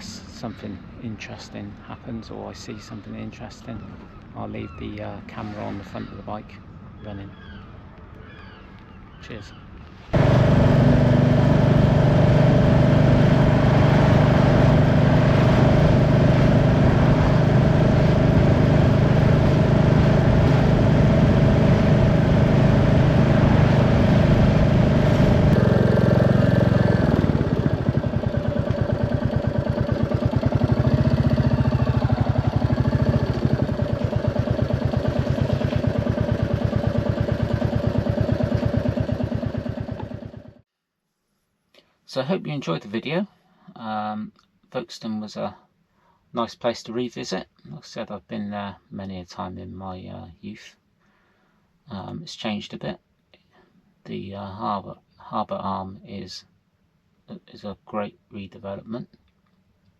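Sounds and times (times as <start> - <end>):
motorcycle engine running: 10.2 - 40.6.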